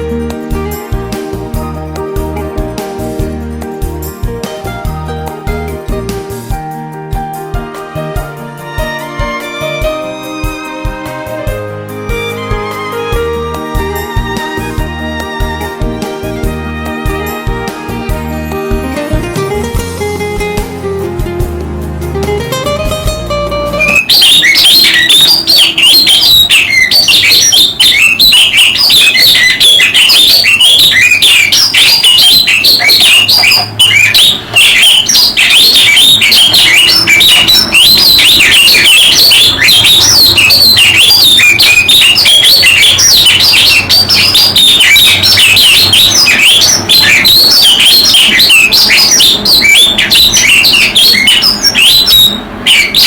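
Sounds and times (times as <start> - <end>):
songbirds chirping and twittering: 23.8 - 53.0.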